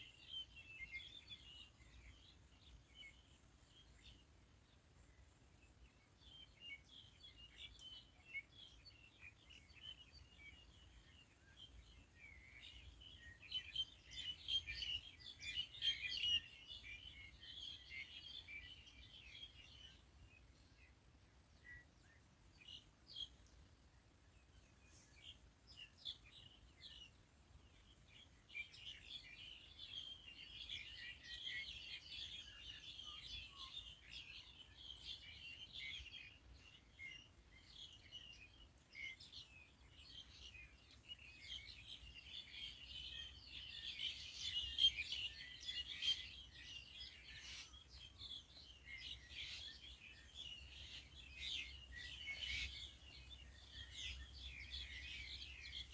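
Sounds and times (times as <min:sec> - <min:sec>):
birds chirping: 0:28.7 - 0:55.9.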